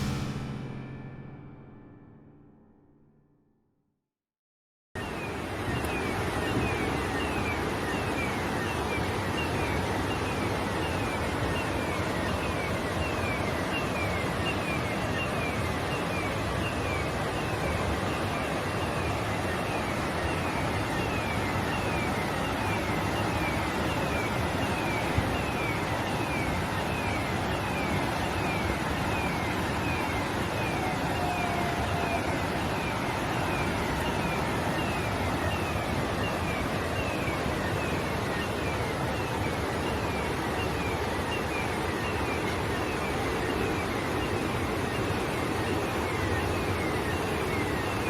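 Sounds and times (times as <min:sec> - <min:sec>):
high falling chirp: 0:00.0 - 0:02.6.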